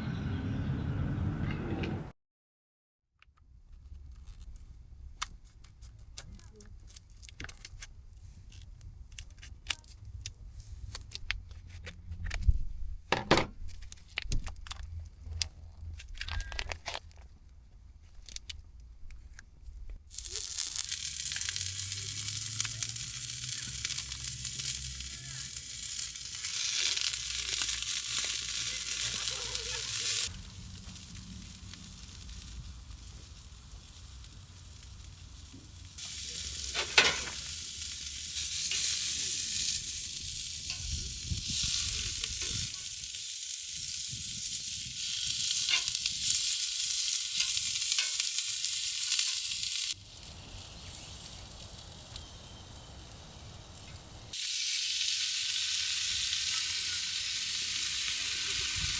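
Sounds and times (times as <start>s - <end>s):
food sizzling in a hot pan: 20.1s - 58.9s
utensils and cookware clicking: 36.4s - 37.6s.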